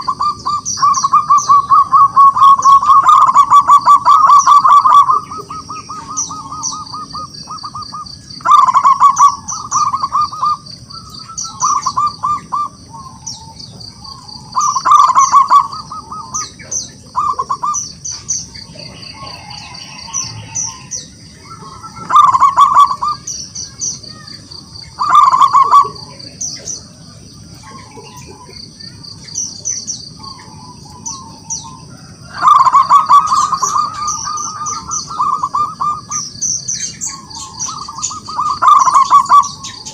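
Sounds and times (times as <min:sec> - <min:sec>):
dove cooing in rapid bursts: 0:00.0 - 0:23.4, 0:24.1 - 0:29.1, 0:30.1 - 0:39.9
high chirping: 0:00.0 - 0:39.9.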